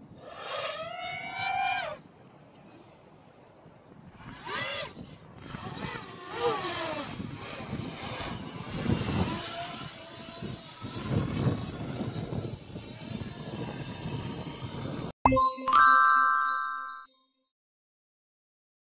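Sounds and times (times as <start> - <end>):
electric motor rumbling and whining: 4.3 - 15.1
electronic chime jingle: 15.2 - 17.4.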